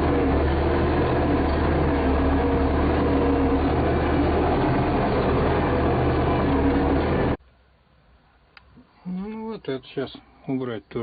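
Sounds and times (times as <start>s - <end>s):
vehicle engine running: 0.0s - 7.4s.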